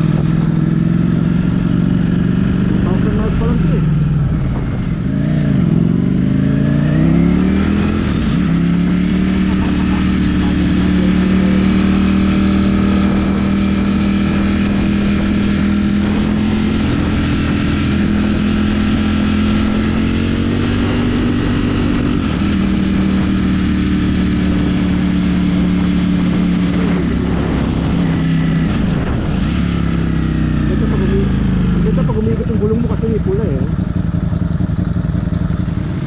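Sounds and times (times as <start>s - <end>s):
motorcycle engine running: 0.0s - 36.0s
wind rushing: 3.8s - 9.5s, 10.1s - 31.9s.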